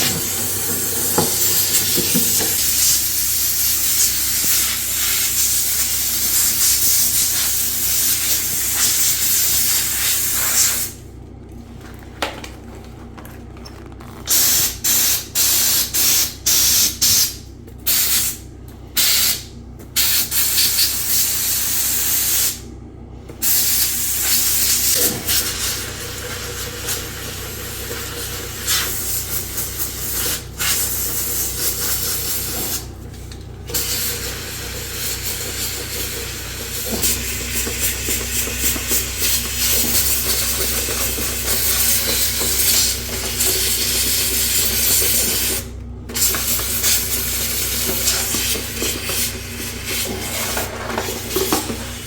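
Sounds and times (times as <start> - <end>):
hissing spray jet: 0.0 - 11.0.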